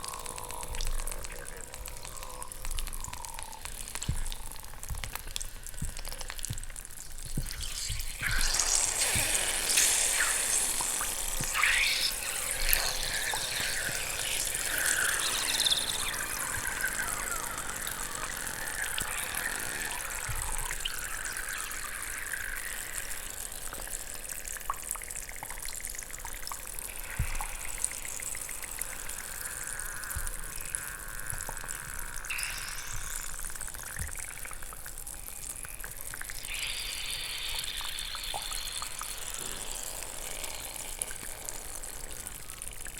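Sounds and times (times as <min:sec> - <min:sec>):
chalk fizzing and crackling in water: 0:00.0 - 0:42.9
thin squeaky whistles: 0:07.6 - 0:23.5.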